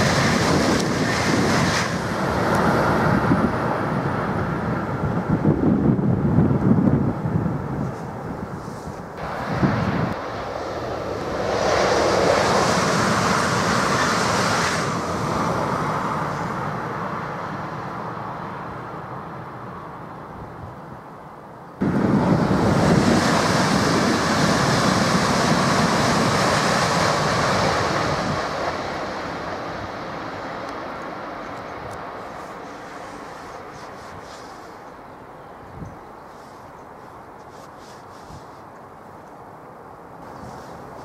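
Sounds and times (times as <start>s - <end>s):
wind on microphone: 0.0s - 17.0s, 21.8s - 30.1s
high-speed train passing: 0.0s - 41.0s.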